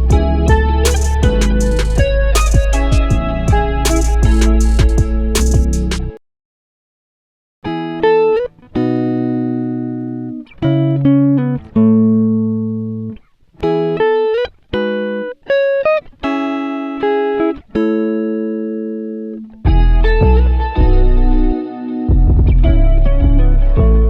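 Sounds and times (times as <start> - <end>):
plucked string instrument: 0.0 - 6.2, 19.2 - 24.0.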